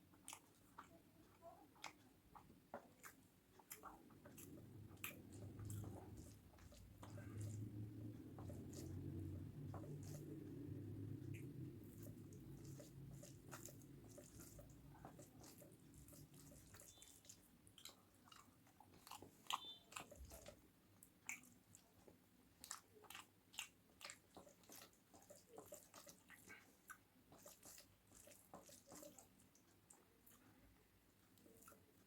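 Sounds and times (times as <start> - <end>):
person chewing with wet smacks: 0.0 - 32.0
food crunching: 0.1 - 30.5.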